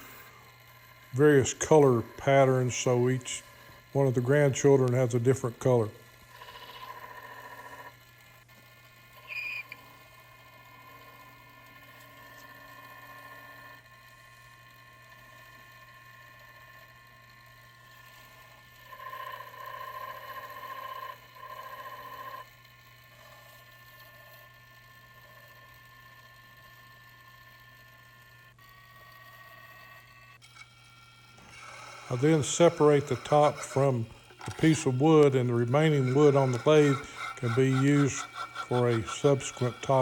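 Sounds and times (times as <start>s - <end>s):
wood lathe running: 0.0s - 40.0s.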